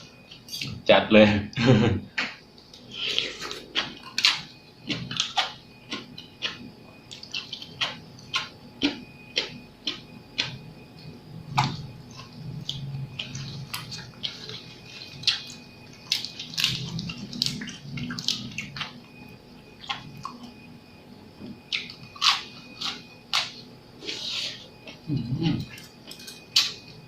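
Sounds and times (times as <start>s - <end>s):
wet chewing mouth sounds: 2.7s - 10.6s.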